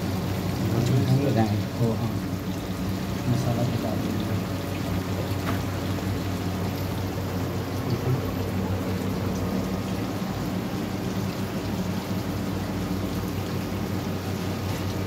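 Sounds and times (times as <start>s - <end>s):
low hum of electric cooktop: 0.0s - 15.0s.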